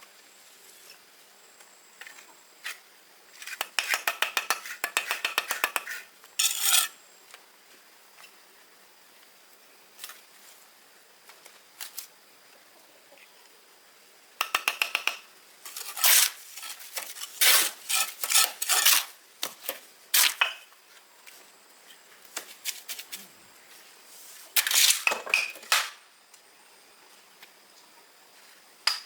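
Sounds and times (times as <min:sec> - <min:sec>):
metal trowel scraping brick: 0:05.8 - 0:07.0, 0:15.7 - 0:19.1.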